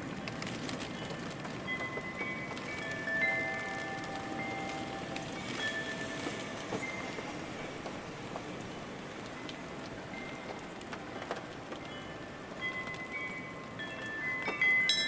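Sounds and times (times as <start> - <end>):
steady rain: 0.0 - 15.0
wind chime notes: 1.7 - 7.8, 11.9 - 15.0.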